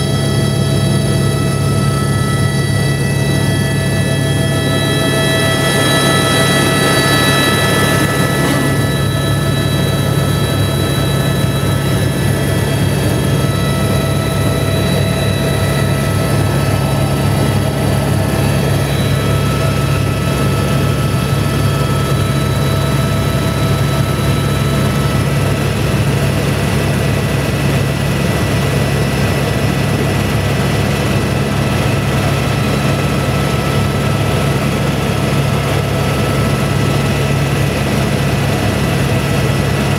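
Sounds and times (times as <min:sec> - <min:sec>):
high whine: 0:00.0 - 0:29.3
helicopter engine and rotor drone: 0:00.0 - 0:39.9.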